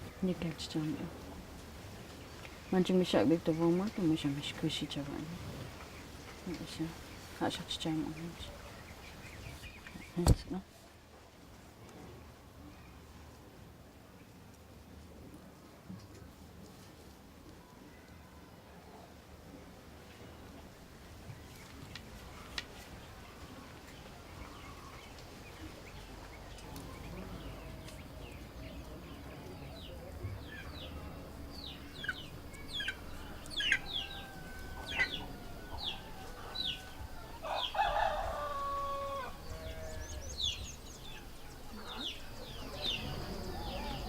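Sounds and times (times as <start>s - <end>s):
high falling chirps of chicks: 26.5s - 44.0s
rooster crowing: 33.0s - 40.6s, 42.5s - 44.0s.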